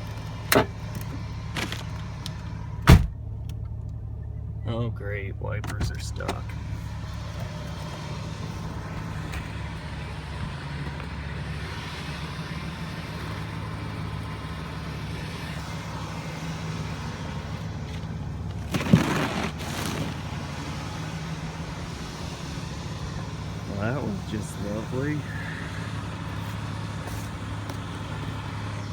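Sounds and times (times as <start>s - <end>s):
car engine idling: 0.0s - 28.9s
loud thump: 2.8s - 3.2s
rough noise: 18.5s - 20.8s.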